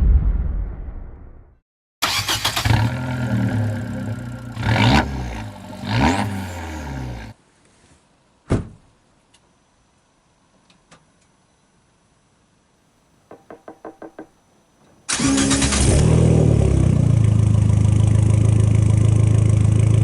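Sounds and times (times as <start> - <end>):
sharp knock: 13.3 - 14.3.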